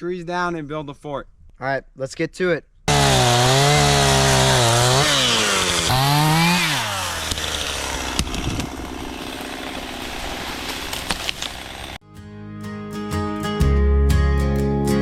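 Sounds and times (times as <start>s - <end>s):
chainsaw running at high revs: 2.9s - 12.0s
sharp cracks: 5.4s - 12.0s.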